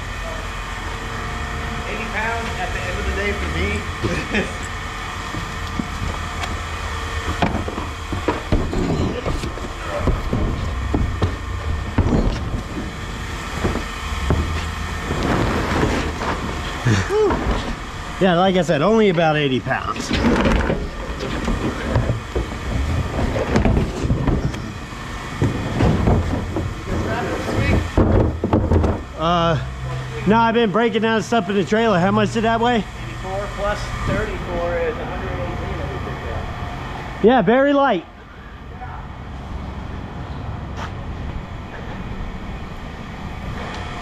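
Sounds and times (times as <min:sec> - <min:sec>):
vehicle engine idling: 0:00.0 - 0:19.9
vehicle engine rumbling: 0:00.0 - 0:37.3, 0:38.0 - 0:44.0.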